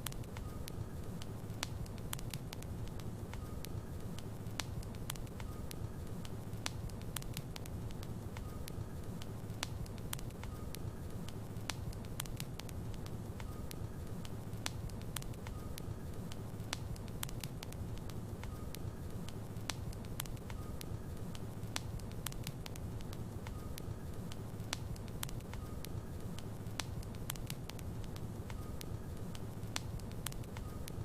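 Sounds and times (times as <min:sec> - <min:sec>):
wood crackling and popping: 0:00.0 - 0:31.0.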